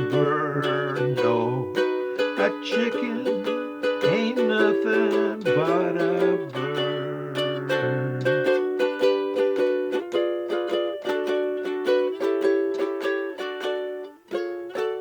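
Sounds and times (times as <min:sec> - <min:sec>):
wavering melody line: 0:00.0 - 0:09.2
ukulele strumming: 0:00.0 - 0:15.0.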